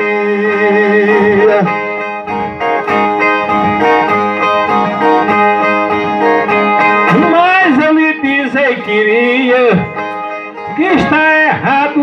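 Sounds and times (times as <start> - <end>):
plucked steel-strung guitar run: 0.0 - 12.0.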